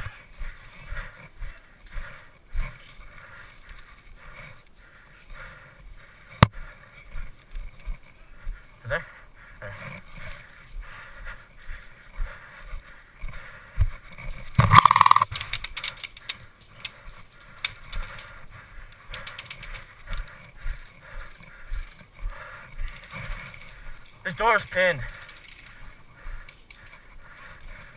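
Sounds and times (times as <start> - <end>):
footsteps: 9.9 - 27.9
gear rattling: 14.2 - 27.4
sharp clicks: 14.5 - 20.4, 22.8 - 27.4.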